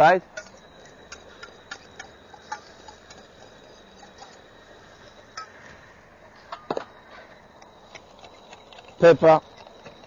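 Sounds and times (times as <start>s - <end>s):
utensils clinking against a pan: 0.4s - 4.4s.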